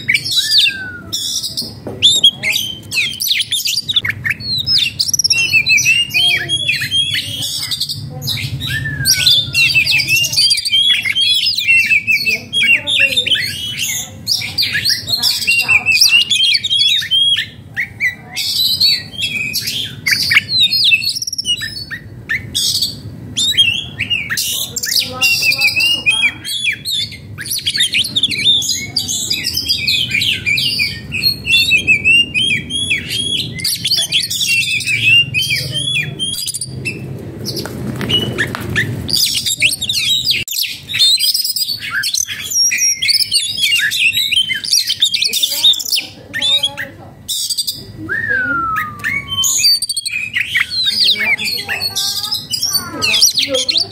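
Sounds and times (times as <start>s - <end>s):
bird singing chirps and whistles: 0.0s - 53.9s.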